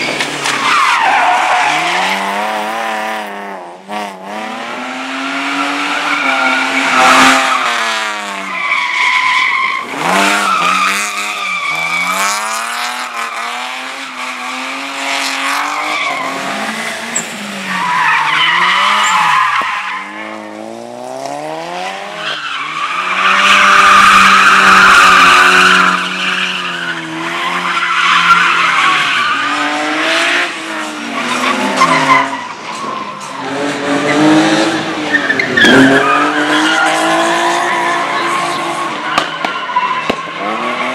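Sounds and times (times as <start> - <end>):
tyres squealing: 15.6 - 20.3.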